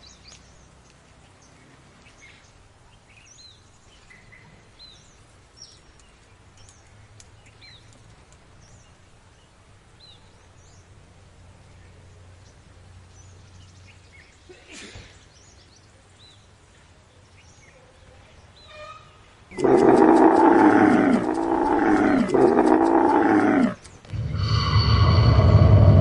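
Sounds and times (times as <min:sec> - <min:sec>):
faint chirps: 0:19.5 - 0:26.0
large animal calling: 0:19.5 - 0:26.0
loud steady sound: 0:24.1 - 0:26.0.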